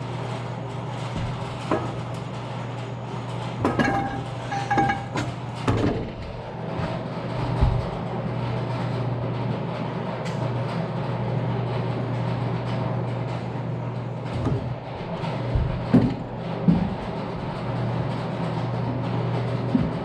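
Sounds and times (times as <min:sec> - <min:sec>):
steady low hum: 0:00.0 - 0:20.0
metal tools knocking and clunking: 0:03.6 - 0:06.2.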